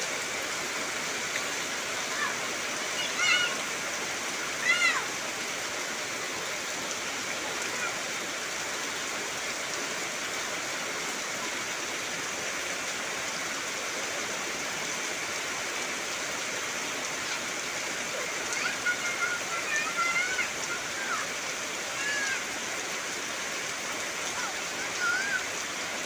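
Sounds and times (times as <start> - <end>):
heavy rain on trees: 0.0 - 26.0.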